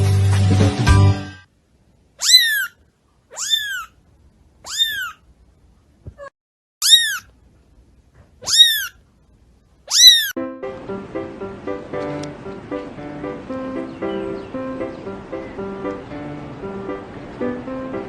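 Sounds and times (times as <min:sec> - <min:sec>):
cat meowing: 0:02.2 - 0:04.0, 0:04.6 - 0:05.2, 0:06.1 - 0:07.3, 0:08.4 - 0:09.0, 0:09.8 - 0:10.4.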